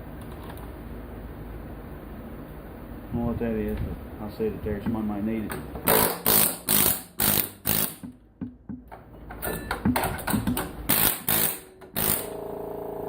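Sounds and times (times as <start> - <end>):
air chisel rattling bursts: 5.9 - 8.1, 10.8 - 12.4.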